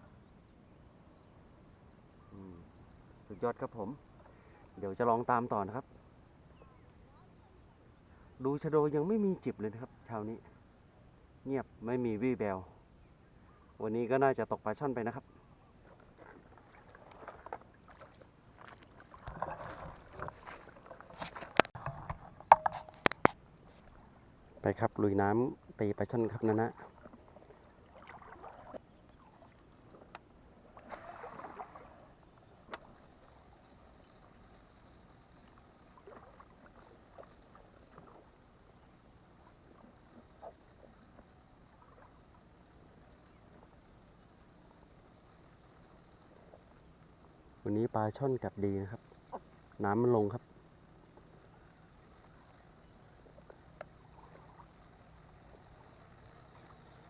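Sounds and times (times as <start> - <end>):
water sloshing from wading: 15.5 - 47.6, 50.5 - 57.0.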